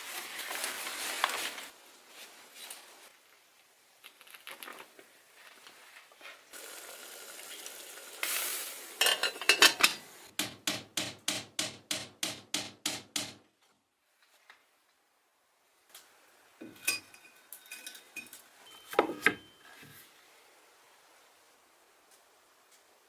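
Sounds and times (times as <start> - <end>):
steady hiss: 0.0 - 11.7, 14.1 - 23.0
utensils clinking against pots: 9.0 - 10.1, 16.6 - 19.6.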